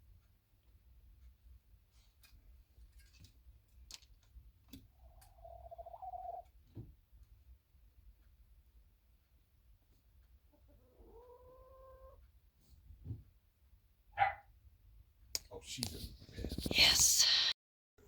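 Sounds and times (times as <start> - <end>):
drawn-out animal call: 5.0 - 6.4.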